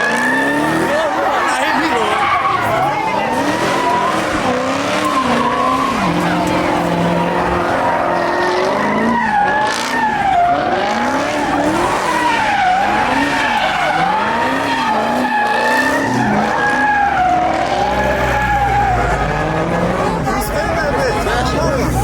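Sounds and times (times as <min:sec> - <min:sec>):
car engine revving: 0:00.0 - 0:22.0
tyres squealing: 0:00.0 - 0:22.0.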